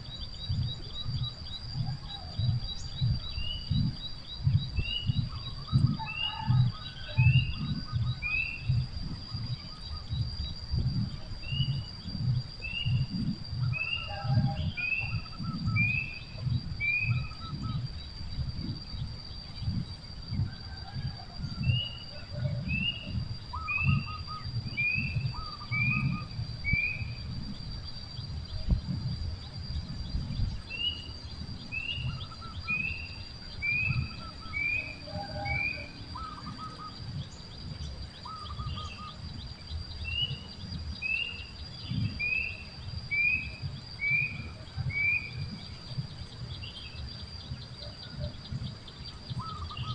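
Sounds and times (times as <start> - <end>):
steady high whine: 0.0 - 49.9
wind rumble on microphone: 0.0 - 49.9
lower two-part bird calls: 21.6 - 27.1.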